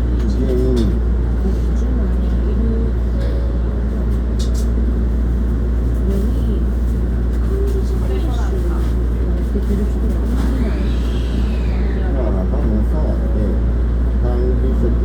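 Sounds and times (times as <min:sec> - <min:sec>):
train rumble from inside: 0:00.0 - 0:15.0
voices: 0:05.9 - 0:15.0.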